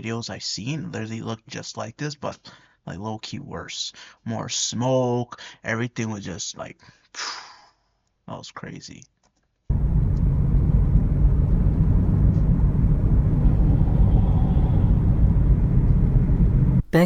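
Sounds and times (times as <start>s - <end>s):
car driving low rumble: 9.7s - 16.8s
road and wind noise: 9.7s - 16.8s.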